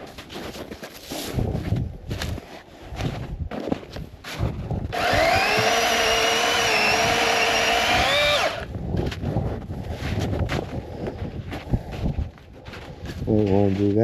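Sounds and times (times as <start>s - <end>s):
electric chainsaw motor whining: 4.9s - 8.7s.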